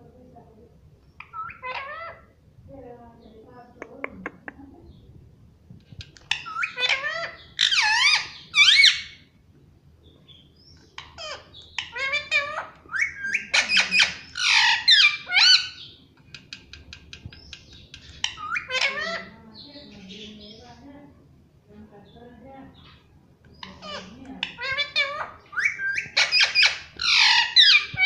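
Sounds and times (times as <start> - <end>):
parakeet squawking: 1.2 - 2.4, 6.2 - 9.3, 10.9 - 16.7, 17.7 - 20.5, 23.6 - 28.0.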